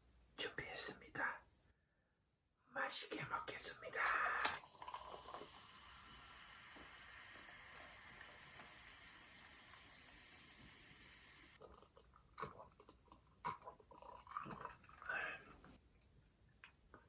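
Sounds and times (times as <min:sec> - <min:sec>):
soft chewing and mouth sounds: 0:11.6 - 0:17.0.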